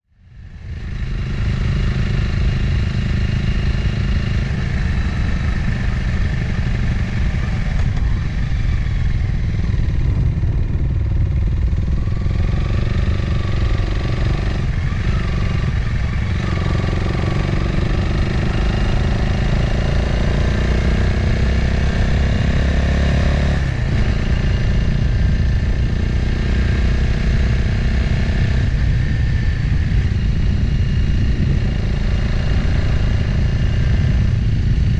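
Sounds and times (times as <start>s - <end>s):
motorcycle engine running: 0.2s - 34.9s
wind noise: 0.4s - 34.9s.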